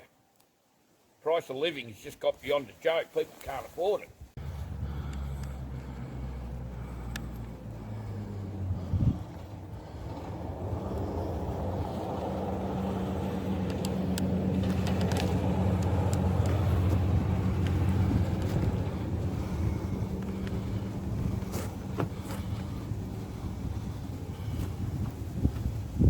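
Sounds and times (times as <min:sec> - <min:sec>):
vehicle engine humming: 0:04.4 - 0:26.0
sharp clicks: 0:07.0 - 0:07.5.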